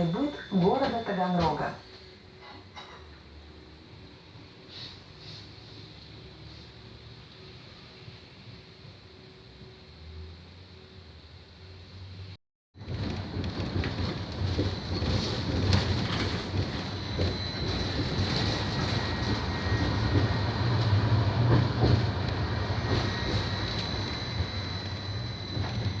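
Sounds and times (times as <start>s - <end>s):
tram rumbling on rails: 0.0s - 3.2s, 12.8s - 26.0s.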